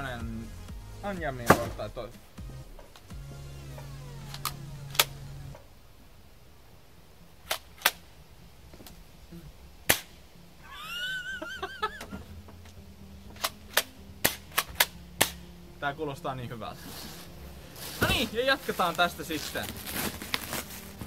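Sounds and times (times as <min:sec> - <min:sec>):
toy pistol snaps: 0:09.9 - 0:10.2, 0:13.4 - 0:15.4.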